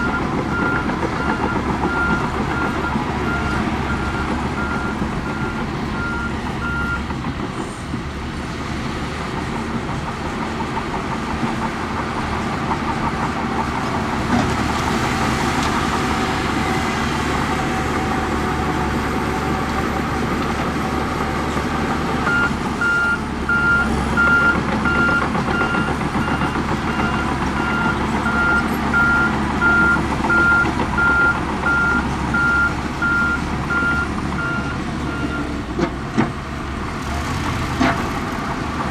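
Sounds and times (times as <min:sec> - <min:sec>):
reversing alarm beeping: 0:00.0 - 0:07.0, 0:22.3 - 0:35.5
diesel engine running: 0:00.0 - 0:38.9.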